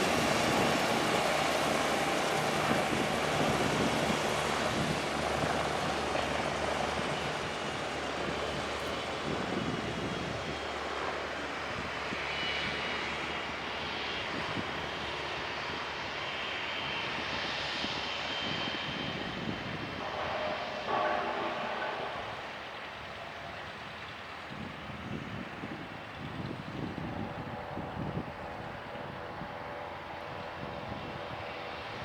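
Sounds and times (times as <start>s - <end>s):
helicopter engines and rotor: 0.0s - 32.0s.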